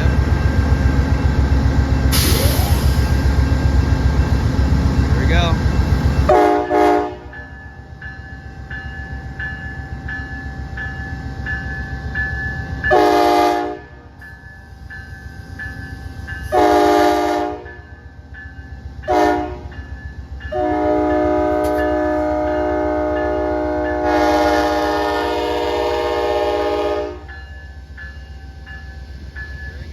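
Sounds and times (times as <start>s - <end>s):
diesel locomotive engine rumbling: 0.0s - 29.9s
locomotive bell dinging: 0.0s - 29.9s
train air horn blasts: 6.3s - 7.3s, 12.9s - 14.0s, 16.5s - 17.7s, 19.1s - 19.7s, 20.5s - 27.3s.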